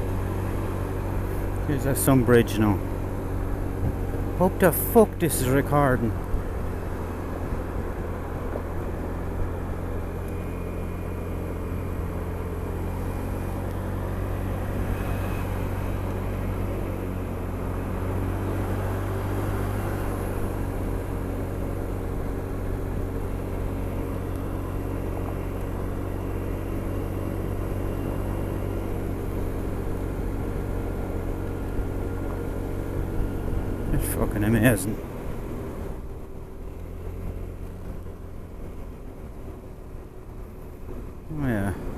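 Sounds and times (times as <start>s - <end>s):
scooter engine humming: 0.0s - 41.9s
wind and road noise: 0.0s - 41.9s.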